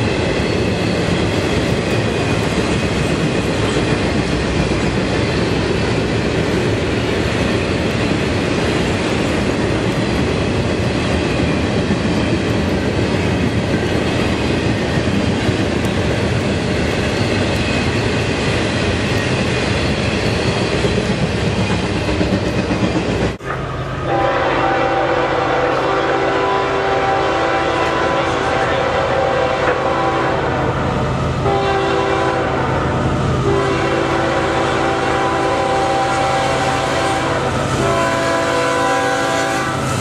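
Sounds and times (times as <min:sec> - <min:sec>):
train wheels running on rails: 0:00.0 - 0:40.0
train horn: 0:23.4 - 0:40.0.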